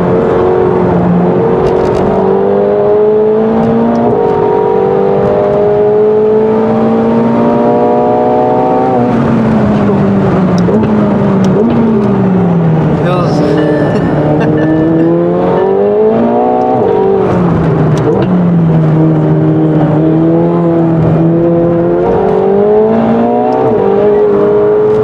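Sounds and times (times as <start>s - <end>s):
sports car engine accelerating: 0.0s - 25.0s.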